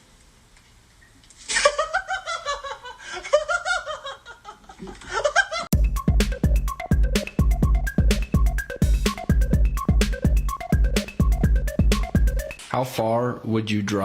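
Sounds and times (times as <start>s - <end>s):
person laughing: 1.5s - 5.7s
electronic music with drum-machine beat: 5.7s - 13.0s.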